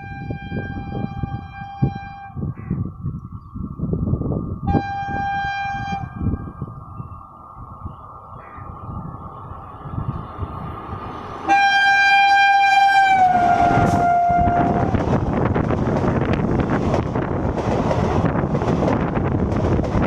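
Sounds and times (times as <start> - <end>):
train horn blast: 0.0 - 2.4, 4.7 - 6.2, 11.5 - 15.0
train passing rumble: 0.0 - 20.0.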